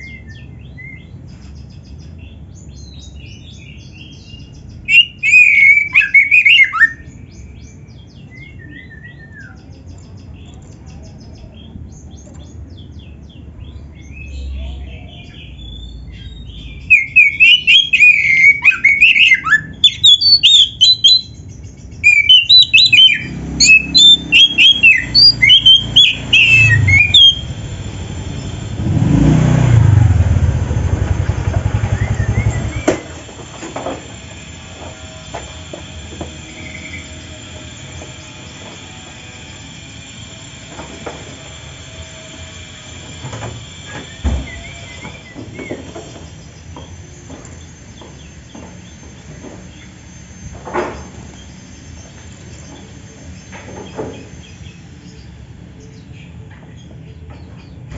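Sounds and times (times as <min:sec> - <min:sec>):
bird singing chirps and whistles: 0:00.0 - 0:10.0, 0:14.0 - 0:30.4, 0:31.3 - 0:57.8
passing vehicle rumble: 0:22.7 - 0:48.4.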